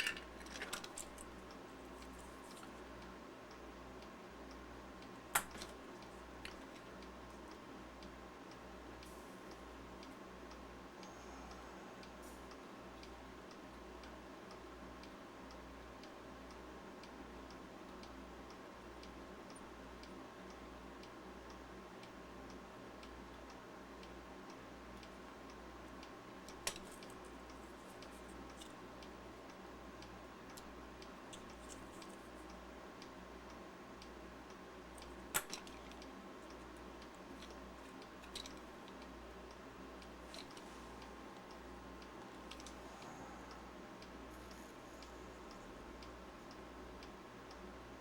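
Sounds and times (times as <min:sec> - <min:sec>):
small parts clicking: 0:00.0 - 0:02.8, 0:05.3 - 0:07.0, 0:26.5 - 0:28.8, 0:30.5 - 0:32.5, 0:34.9 - 0:42.8
faint soft ticking: 0:00.0 - 0:48.0
steady low hum: 0:00.0 - 0:48.0.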